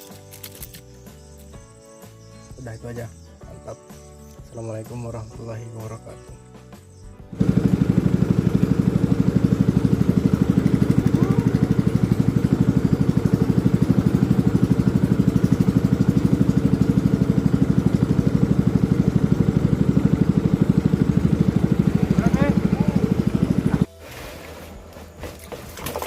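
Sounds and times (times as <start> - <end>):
small engine puttering: 0.0 - 1.5, 7.3 - 26.0.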